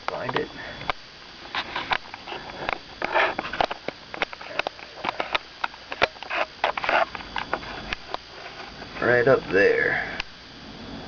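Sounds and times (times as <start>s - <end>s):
breathing: 0.5s - 0.9s.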